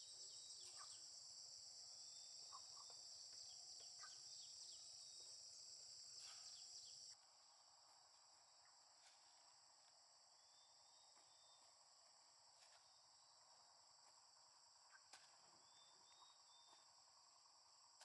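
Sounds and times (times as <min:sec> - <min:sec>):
high-pitched insect chorus: 0:00.0 - 0:07.2.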